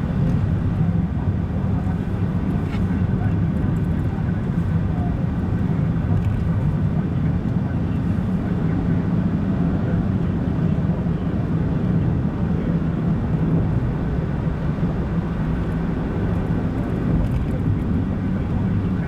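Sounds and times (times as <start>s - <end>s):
car engine hum: 13.8s - 19.0s.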